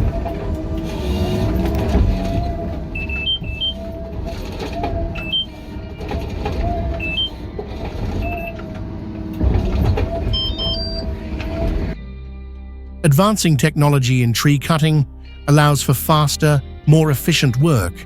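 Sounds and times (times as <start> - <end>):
heavy machinery engine rumble: 0.0 - 12.0.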